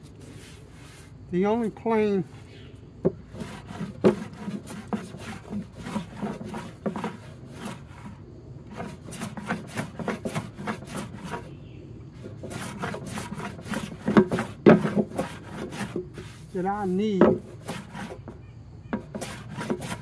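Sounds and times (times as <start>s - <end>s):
hand plane shaving wood: 3.3s - 11.6s, 12.2s - 18.4s, 19.0s - 20.0s.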